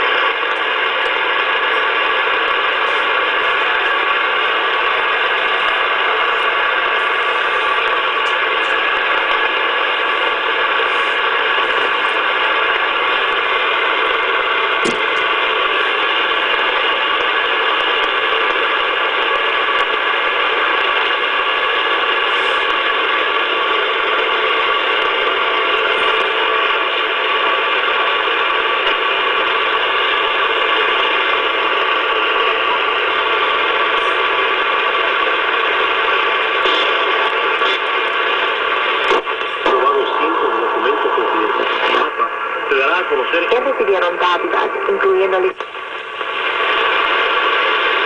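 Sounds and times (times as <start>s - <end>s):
radio static hiss: 0.0s - 48.0s
radio station signal: 0.0s - 48.0s
radio clicks: 7.8s - 24.3s, 28.8s - 29.1s, 33.6s - 42.4s, 43.5s - 48.0s.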